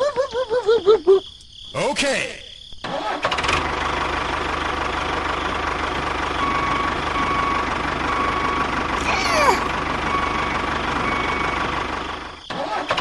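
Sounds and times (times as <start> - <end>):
engine chugging: 2.8 - 13.0.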